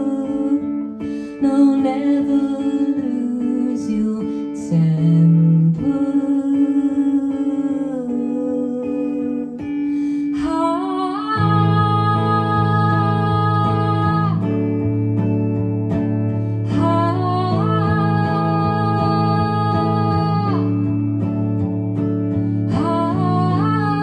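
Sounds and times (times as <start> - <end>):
acoustic guitar strumming: 9.5 - 24.0.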